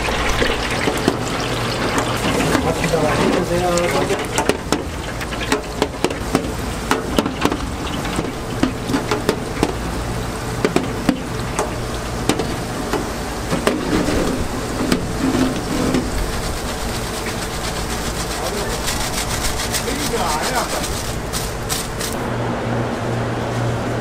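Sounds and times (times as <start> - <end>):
utensils clicking and knocking: 16.8 - 22.2.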